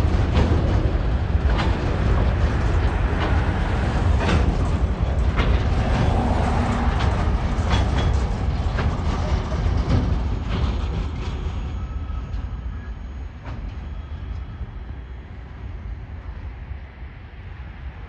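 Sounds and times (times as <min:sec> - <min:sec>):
wheel clicks and clunks: 0:00.0 - 0:11.6
freight train low rumble: 0:00.0 - 0:18.0.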